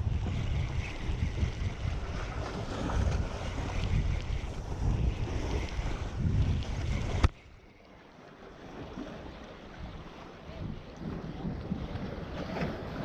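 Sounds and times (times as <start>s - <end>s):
sea washing on rocks: 0.0s - 7.4s
wind buffeting microphone: 0.0s - 7.6s, 8.7s - 13.0s.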